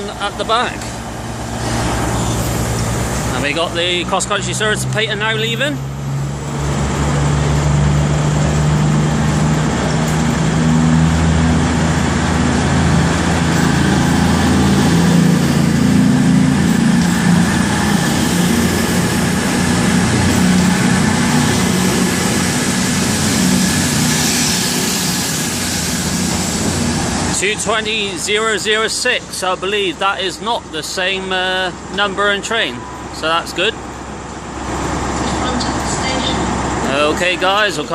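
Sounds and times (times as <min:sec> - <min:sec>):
diesel train engines running: 0:00.0 - 0:37.9.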